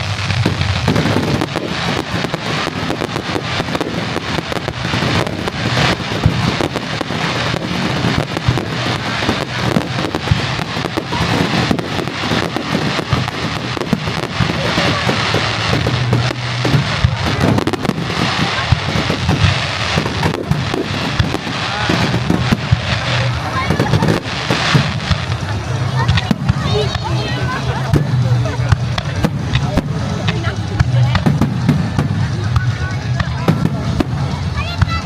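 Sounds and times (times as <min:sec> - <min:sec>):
fireworks bursts and crackling: 0:00.0 - 0:35.0.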